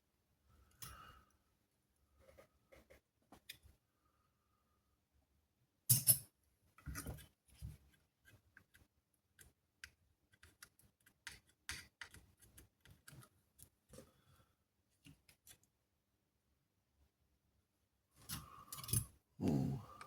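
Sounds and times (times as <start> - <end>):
tools clicking and scraping: 18.3 - 19.1.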